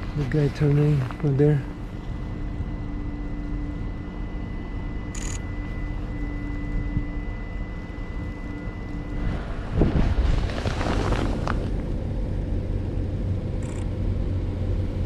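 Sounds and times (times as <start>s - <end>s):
traffic rumble: 0.0s - 3.8s, 7.8s - 15.0s.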